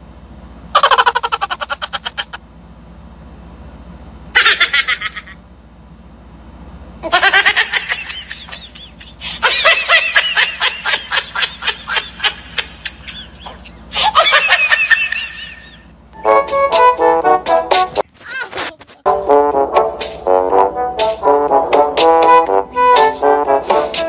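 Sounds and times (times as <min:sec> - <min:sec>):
high-pitched giggling: 0:00.8 - 0:02.4, 0:04.4 - 0:05.4, 0:07.0 - 0:15.9
brass music: 0:16.2 - 0:18.0, 0:19.1 - 0:24.0.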